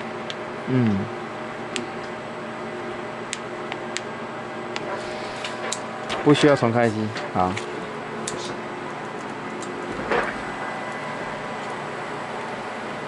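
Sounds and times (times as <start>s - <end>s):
machine or fan hum: 0.0s - 13.0s
person humming low: 0.6s - 1.2s.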